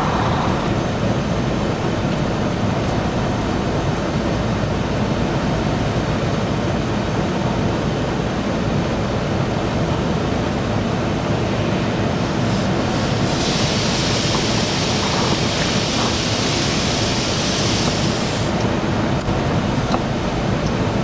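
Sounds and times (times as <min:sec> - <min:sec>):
truck wash water spray rumble: 0:00.0 - 0:21.0
hissing spray: 0:12.3 - 0:18.6.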